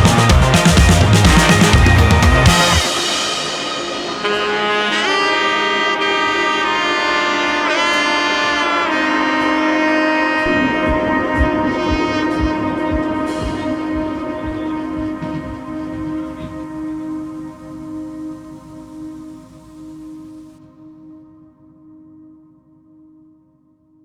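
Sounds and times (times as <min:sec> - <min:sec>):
loud drums: 0:00.0 - 0:06.3, 0:10.7 - 0:17.8
saxophone-like melody with sliding notes: 0:00.0 - 0:20.5
soft low beats: 0:10.4 - 0:20.4.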